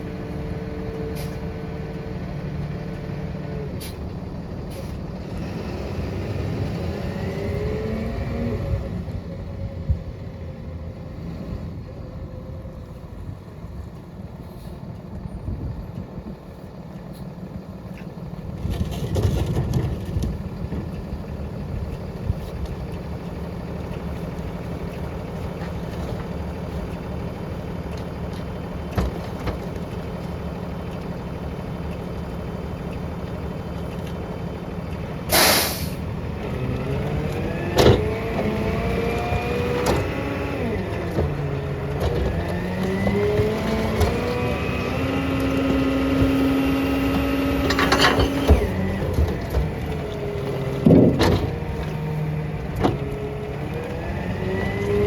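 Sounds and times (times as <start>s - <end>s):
garbage truck diesel engine: 0.0s - 55.0s
air hiss: 35.3s - 36.0s.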